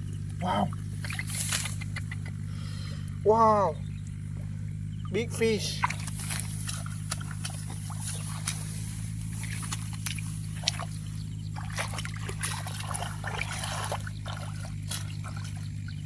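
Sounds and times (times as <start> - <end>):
muddy water sloshing and splashing: 0.0 - 2.5, 4.0 - 16.0
steady low hum: 0.0 - 16.0
short sharp splashes and clicks: 0.7 - 2.3, 5.8 - 16.0.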